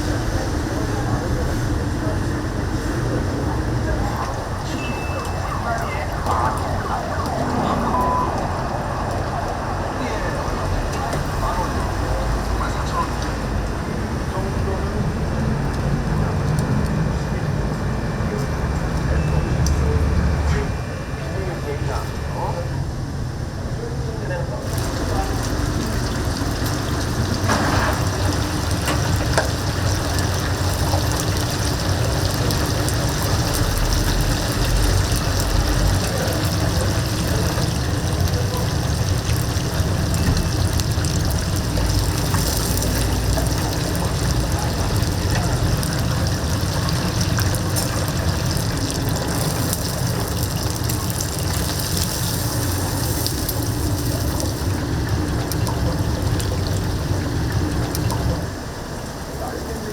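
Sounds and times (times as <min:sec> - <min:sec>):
chicken sizzling in hot oil: 0:24.6 - 0:59.0.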